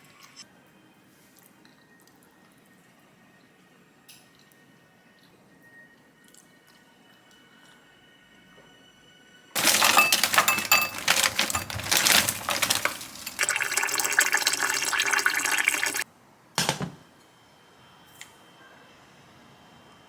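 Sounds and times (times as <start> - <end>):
water running from a tap: 10.2 - 16.0.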